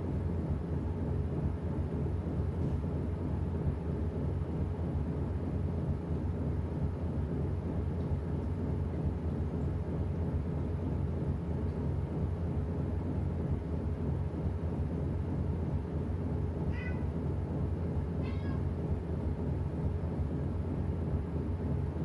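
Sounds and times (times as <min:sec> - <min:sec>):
washing machine humming: 0:00.0 - 0:22.0
cat meowing: 0:16.7 - 0:17.1, 0:18.2 - 0:18.6.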